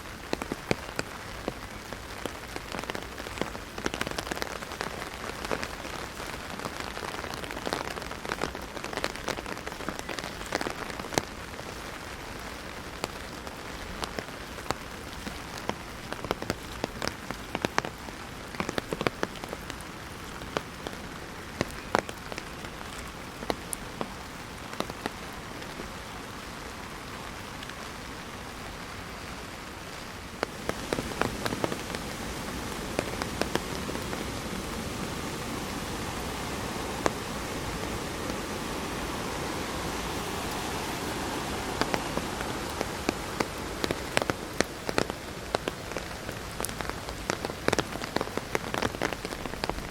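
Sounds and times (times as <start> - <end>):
rain drumming on an umbrella: 0.0 - 49.9
rushing noise: 30.4 - 45.8.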